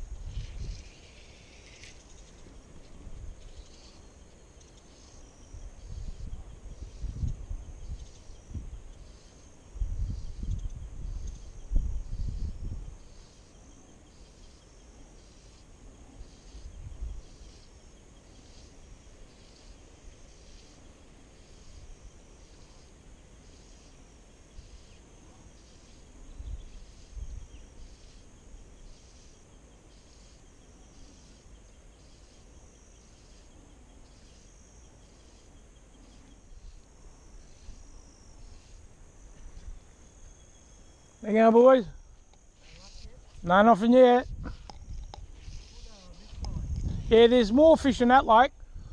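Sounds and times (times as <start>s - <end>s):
wind rumble on microphone: 0.0s - 3.7s, 5.4s - 13.3s, 16.5s - 17.6s, 26.2s - 28.0s, 42.8s - 48.9s
cricket chirping: 0.0s - 48.9s.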